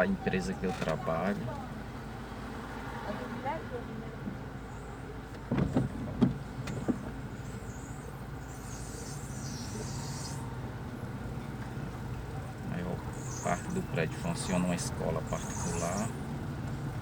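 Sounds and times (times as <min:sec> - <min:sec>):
car cabin low hum: 0:03.4 - 0:17.0
brief hiss: 0:08.4 - 0:10.5.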